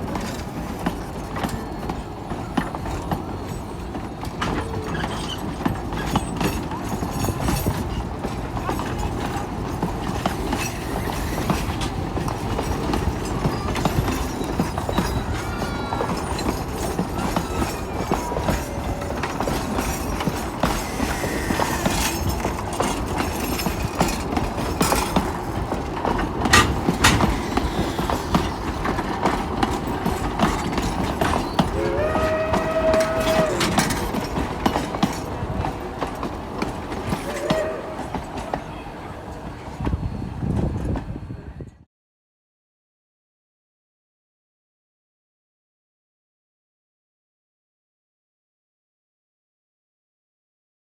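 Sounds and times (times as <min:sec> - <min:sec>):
horn blast: 0:31.8 - 0:33.8.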